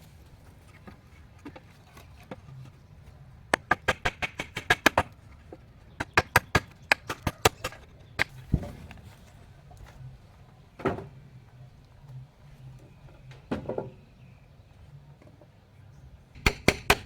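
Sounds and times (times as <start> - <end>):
rapid sharp knocks: 3.6 - 5.0, 16.4 - 17.0.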